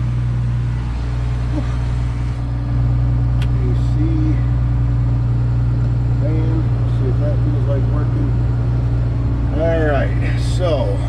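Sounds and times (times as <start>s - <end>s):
diesel engine idling: 0.0s - 11.0s
click: 3.4s - 3.6s.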